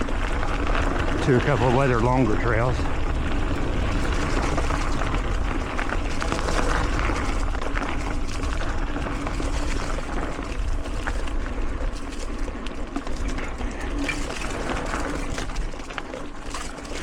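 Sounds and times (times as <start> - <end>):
bike clicks and rattles: 0.0 - 17.0
tyre and wind rumble: 0.0 - 17.0.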